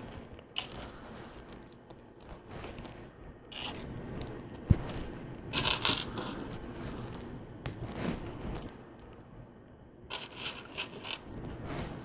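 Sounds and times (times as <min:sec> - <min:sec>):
plastic pieces clicking and rattling: 0:00.4 - 0:01.0, 0:05.5 - 0:06.4, 0:10.1 - 0:11.3.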